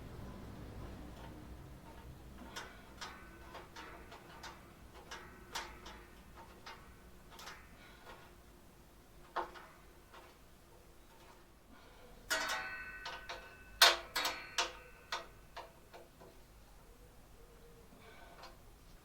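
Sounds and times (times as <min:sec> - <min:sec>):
metal tools clinking and clanking: 0:12.3 - 0:15.4.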